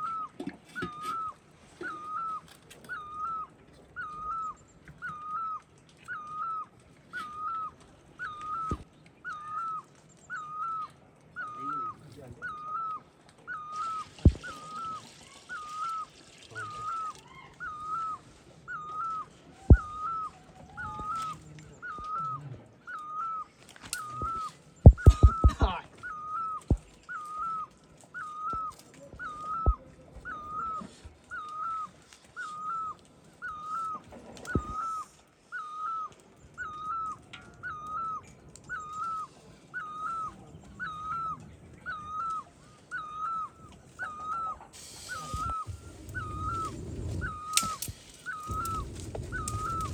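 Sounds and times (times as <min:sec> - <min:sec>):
sharp knocks: 0:24.9 - 0:25.7
animal's short high call: 0:38.9 - 0:49.9.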